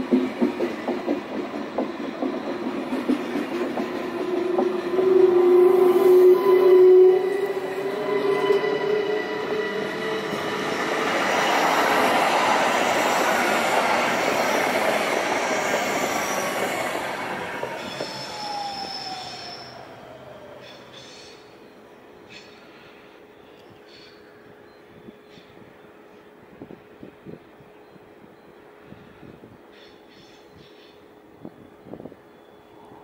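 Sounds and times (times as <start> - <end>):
rumble of train wagons: 0.0 - 33.0
train wheels squealing: 4.1 - 26.2.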